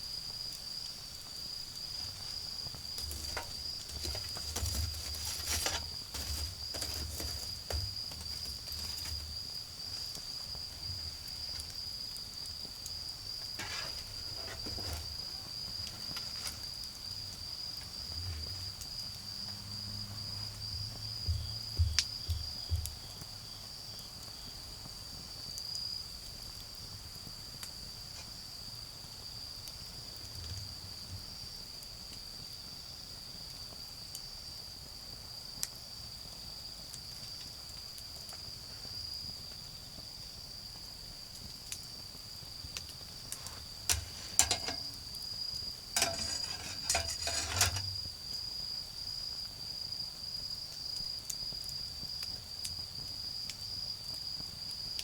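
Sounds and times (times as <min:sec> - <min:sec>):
insects chirring: 0:00.0 - 0:55.0
clicks and light clinks: 0:43.9 - 0:45.0.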